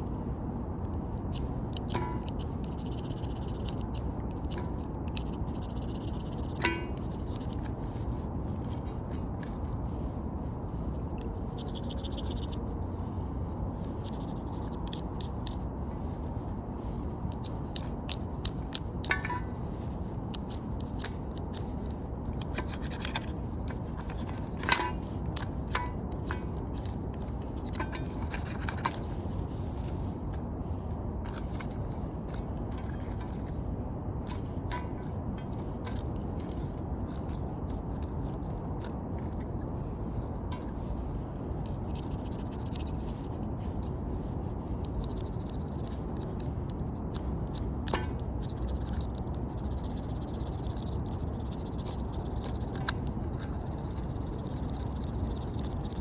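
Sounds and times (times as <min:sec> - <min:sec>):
fire-starter rod scraping: 0:01.4 - 0:09.8, 0:17.4 - 0:30.5, 0:31.2 - 0:37.9.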